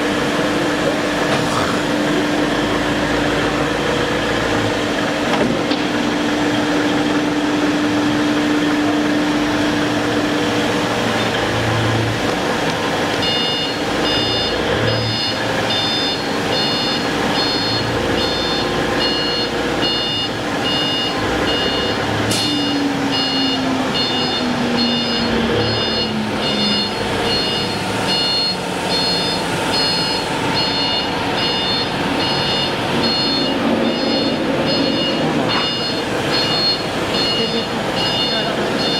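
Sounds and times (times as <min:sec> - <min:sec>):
steady machine noise: 0:00.0 - 0:38.9
electronic warning beeper: 0:13.2 - 0:38.9
low hum sliding down: 0:32.2 - 0:36.2.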